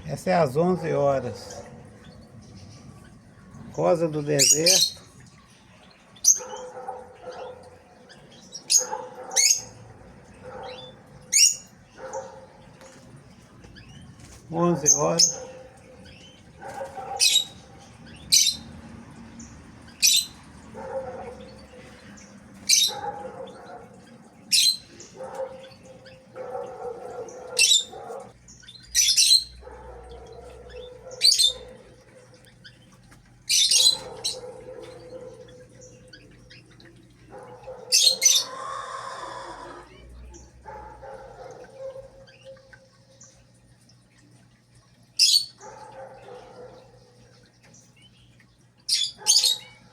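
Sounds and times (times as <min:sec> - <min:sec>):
bird high-pitched calls: 0:04.3 - 0:13.0, 0:13.8 - 0:18.7, 0:19.8 - 0:40.5, 0:45.2 - 0:46.9, 0:47.7 - 0:49.9.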